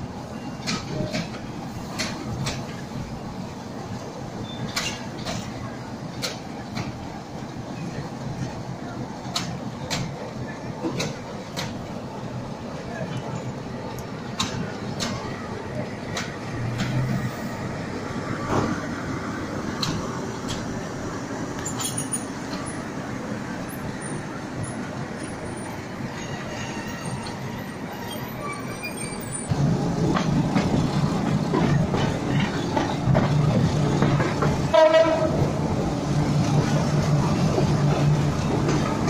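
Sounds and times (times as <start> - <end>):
train wheel and rail noise: 0.0 - 39.0
train horn: 34.7 - 35.4.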